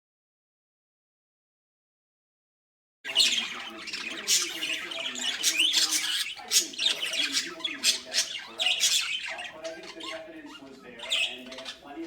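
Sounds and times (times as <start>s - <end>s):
budgerigars chirping: 3.1s - 12.0s.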